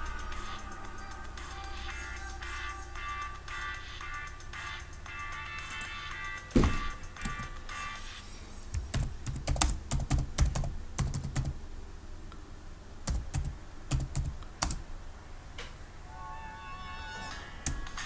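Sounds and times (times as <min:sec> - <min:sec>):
dull thud: 0:06.5 - 0:07.0.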